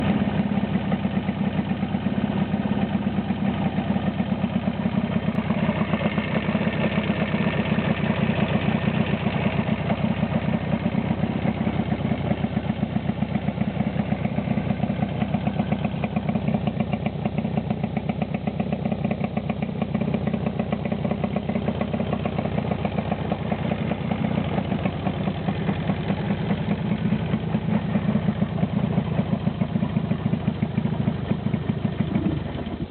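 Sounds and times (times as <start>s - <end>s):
two-stroke engine idling: 0.0s - 32.9s.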